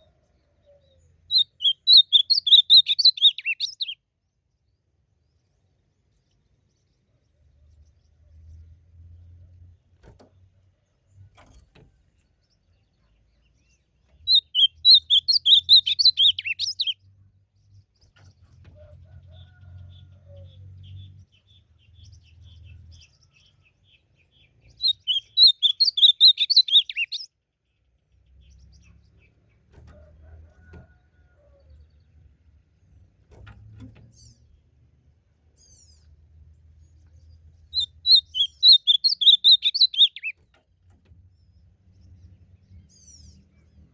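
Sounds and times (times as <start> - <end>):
bird singing warbled phrases: 0.0 - 9.8, 12.1 - 29.8, 33.8 - 40.6.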